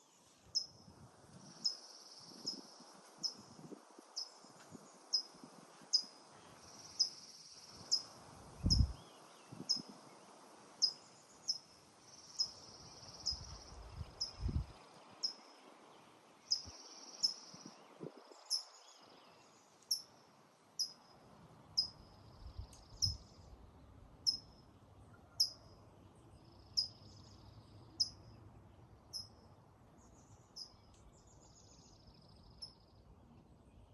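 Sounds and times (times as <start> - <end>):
insect drone: 0.6 - 8.8, 9.6 - 14.4
bird chirping: 4.2 - 9.9, 10.8 - 15.6, 16.4 - 20.1, 21.8 - 23.6, 24.3 - 33.9.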